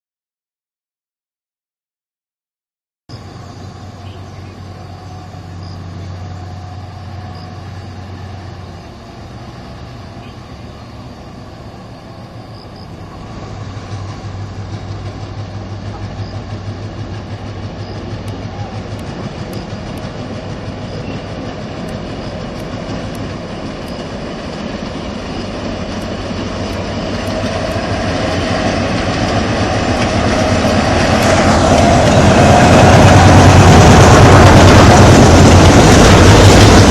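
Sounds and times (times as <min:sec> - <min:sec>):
diesel locomotive engines humming: 0:03.1 - 0:36.9.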